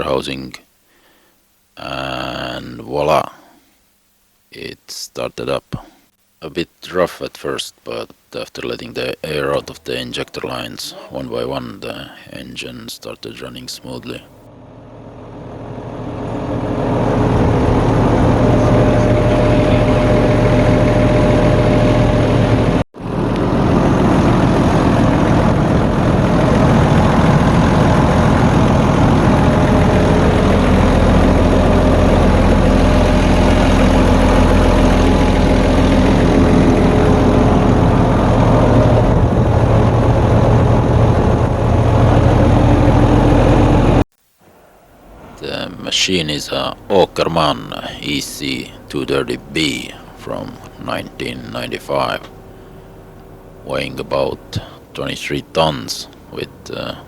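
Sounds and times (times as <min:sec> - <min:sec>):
excavator diesel engine idling: 0:14.5 - 0:44.0, 0:45.4 - 0:57.0.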